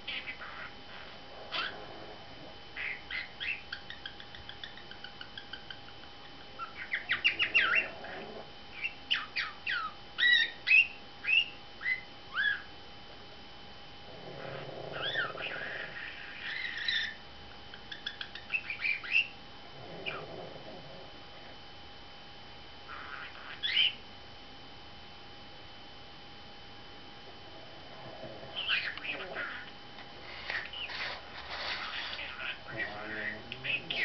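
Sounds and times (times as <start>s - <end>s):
budgerigar chirping and chattering: 0.1s - 1.7s, 2.8s - 8.2s, 8.8s - 12.7s, 15.0s - 19.4s, 22.9s - 24.0s, 28.6s - 29.7s, 31.7s - 34.0s.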